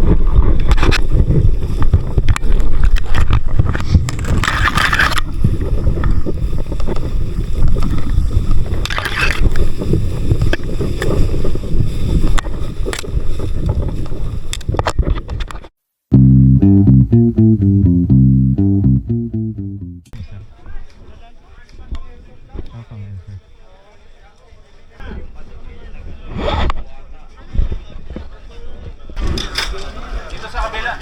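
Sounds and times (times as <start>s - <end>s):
wind buffeting microphone: 0.0s - 15.6s.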